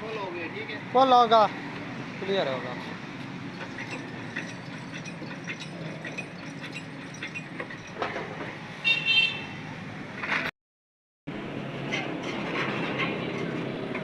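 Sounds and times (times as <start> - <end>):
traffic rumble: 0.0 - 10.5, 11.3 - 14.0
vehicle horn toot: 8.8 - 9.5.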